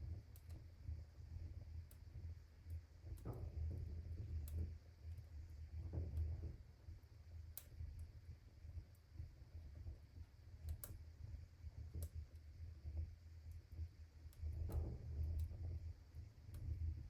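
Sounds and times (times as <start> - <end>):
low steady rumble: 0.0 - 17.0
fire crackling: 11.7 - 15.8.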